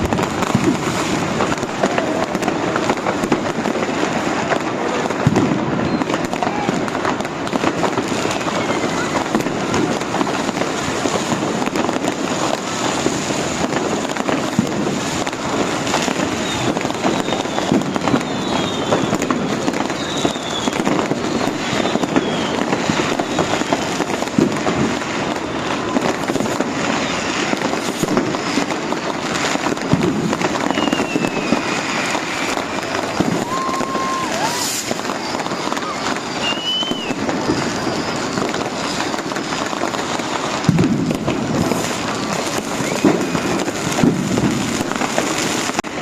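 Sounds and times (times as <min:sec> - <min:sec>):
falling firework whistles: 0:00.0 - 0:46.0
firecrackers crackling and banging: 0:00.0 - 0:46.0.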